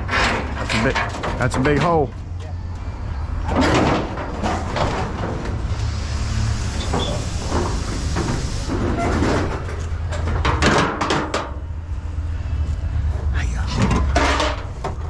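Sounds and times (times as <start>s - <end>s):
knocks and rattles: 0.0s - 2.4s, 3.4s - 5.8s, 6.9s - 11.7s, 13.2s - 15.0s
vehicle engine rumbling: 0.0s - 15.0s.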